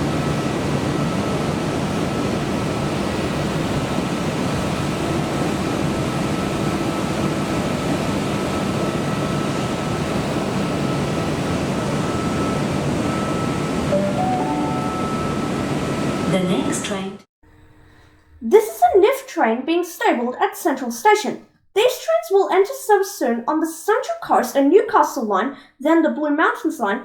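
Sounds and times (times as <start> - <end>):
train air-conditioning hum: 0.0 - 19.3
thin high whine: 10.9 - 17.0.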